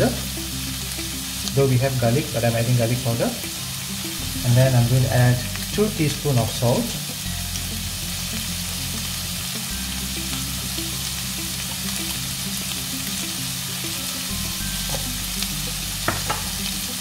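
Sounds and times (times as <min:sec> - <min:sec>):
meat sizzling in a frying pan: 0:00.0 - 0:17.0.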